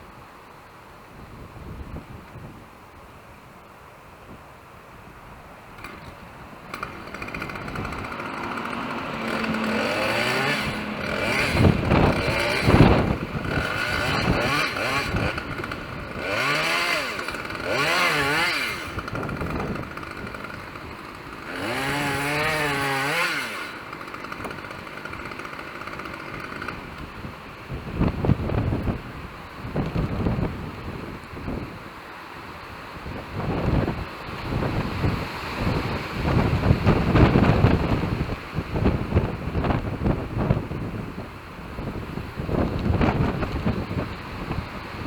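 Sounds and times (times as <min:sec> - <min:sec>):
chainsaw revving: 0:05.8 - 0:27.4.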